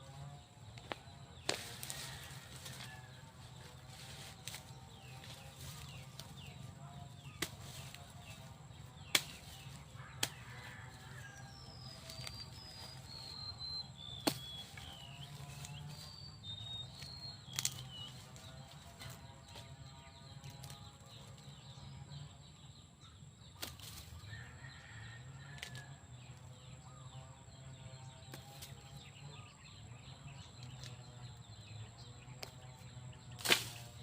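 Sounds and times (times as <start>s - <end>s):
steady low hum: 0.0s - 23.1s
birds chirping: 0.0s - 34.0s.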